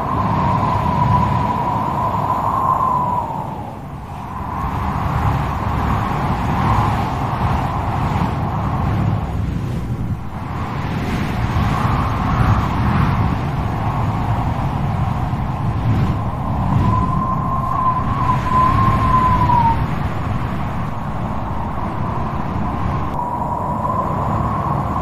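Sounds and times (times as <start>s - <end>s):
strong wind howling: 0.0s - 25.0s.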